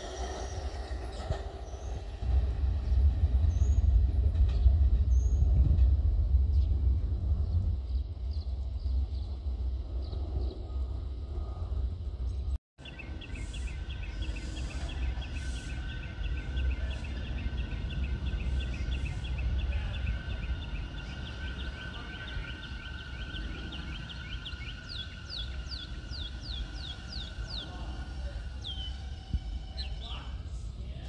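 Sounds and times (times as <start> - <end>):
low rumble: 0.4 - 14.2
bird chirping: 6.5 - 30.6
falling whistled bird calls: 12.9 - 30.1.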